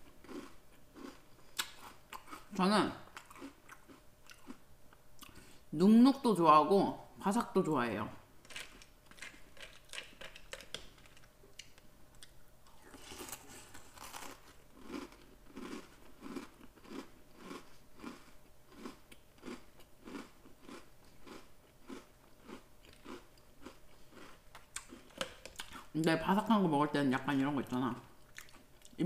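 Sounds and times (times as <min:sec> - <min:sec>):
chewing crunchy cereal: 0:00.0 - 0:04.6, 0:08.5 - 0:25.9, 0:28.2 - 0:29.0.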